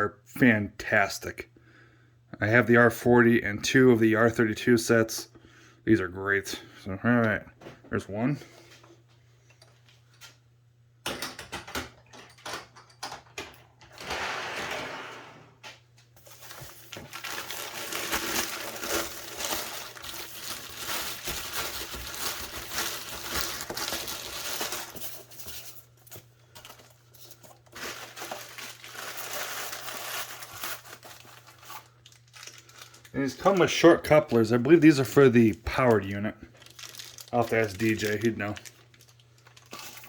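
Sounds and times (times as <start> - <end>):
packaging rustling and crinkling: 16.2 - 40.0.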